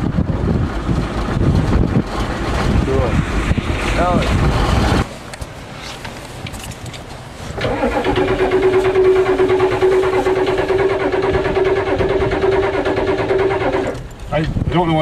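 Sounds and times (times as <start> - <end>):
starter cranking diesel engine: 7.6 - 14.1.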